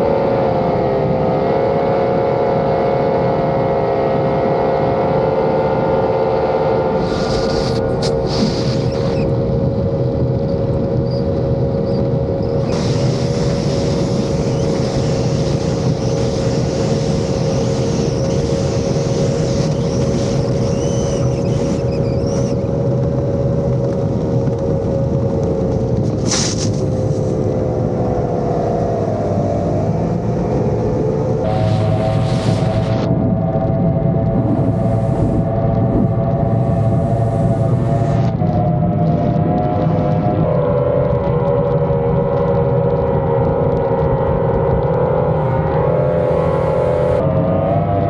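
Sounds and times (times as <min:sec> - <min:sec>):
outboard engines at full throttle: 0:00.0 - 0:48.0
water and wind hiss: 0:12.6 - 0:22.6, 0:26.1 - 0:27.5, 0:34.4 - 0:35.5.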